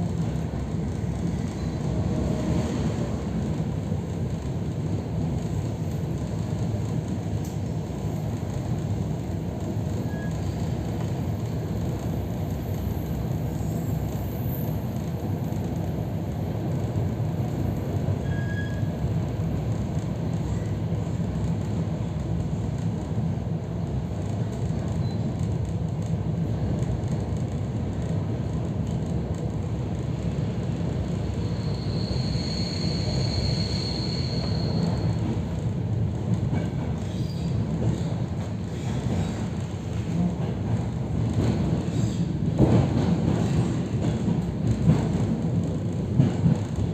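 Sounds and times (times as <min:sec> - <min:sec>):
train wheels rumbling on track: 0:00.0 - 0:46.9.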